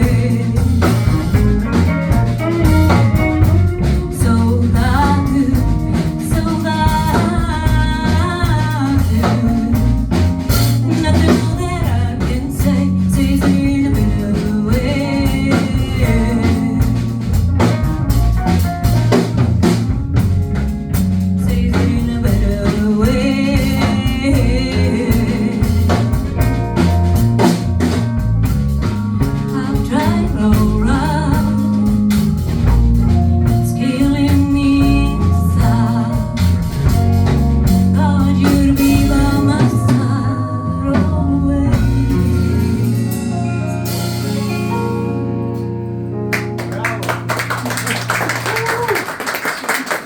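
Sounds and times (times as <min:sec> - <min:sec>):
person singing: 0:00.0 - 0:02.0, 0:02.6 - 0:17.4, 0:21.4 - 0:26.3, 0:29.2 - 0:31.9, 0:33.4 - 0:45.0
drum kit: 0:00.0 - 0:50.0
live band playing: 0:00.0 - 0:50.0.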